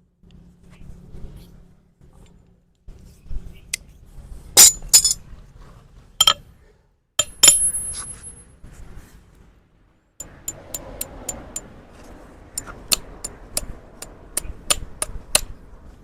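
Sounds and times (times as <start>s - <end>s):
metal tools clinking: 4.6s - 5.2s, 6.2s - 6.4s, 7.2s - 8.4s.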